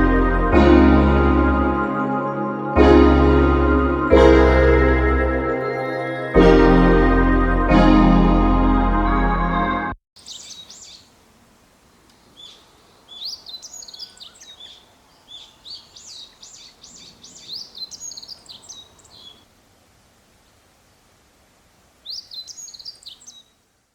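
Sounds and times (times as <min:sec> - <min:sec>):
small songbirds chirping: 0:10.2 - 0:11.2, 0:11.9 - 0:19.5, 0:22.0 - 0:23.6.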